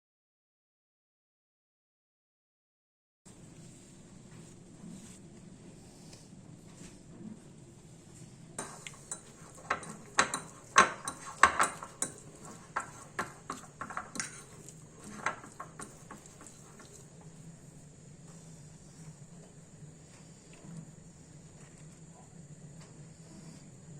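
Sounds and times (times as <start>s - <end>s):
kitchen utensils clinking on a dish: 8.6s - 17.1s.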